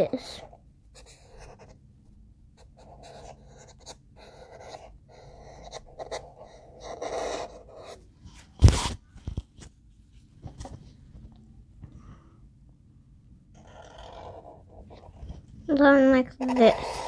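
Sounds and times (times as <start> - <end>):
pencil scratching on paper: 0.0 - 1.8, 2.6 - 8.0, 13.5 - 15.5, 16.2 - 17.0.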